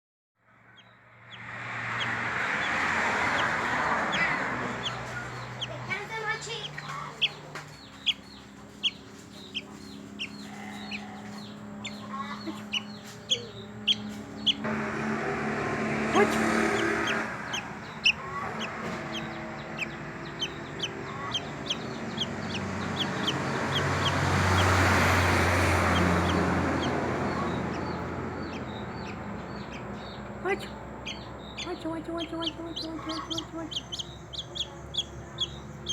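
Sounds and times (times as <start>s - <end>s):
bird chick peeping: 0.8s - 14.7s, 16.4s - 35.9s
rushing noise: 14.6s - 28.4s.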